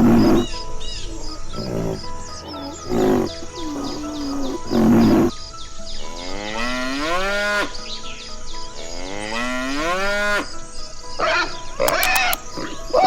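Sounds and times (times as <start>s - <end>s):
faint high chirping: 0.0s - 6.0s
cattle mooing: 1.1s - 5.3s.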